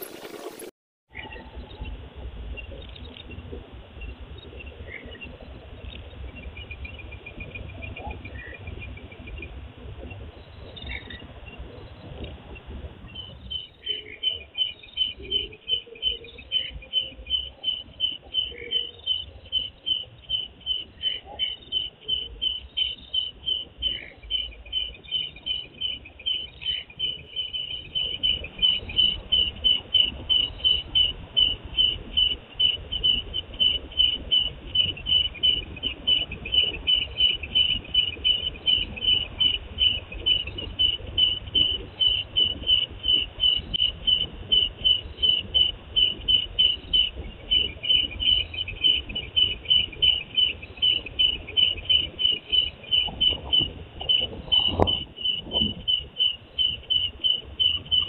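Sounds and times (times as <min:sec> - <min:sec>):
cricket chirping: 0:13.1 - 0:58.0.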